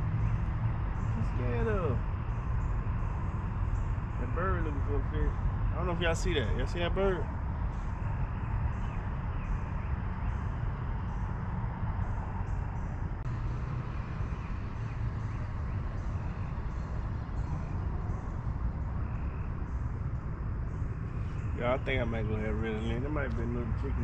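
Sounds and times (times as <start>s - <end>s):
high-pitched insect chirp: 0.0s - 23.9s
low outdoor rumble: 0.0s - 24.0s.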